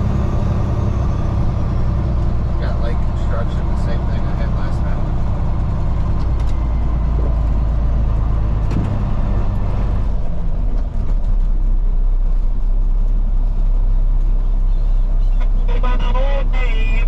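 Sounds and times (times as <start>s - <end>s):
truck diesel engine rumbling: 0.0s - 17.0s.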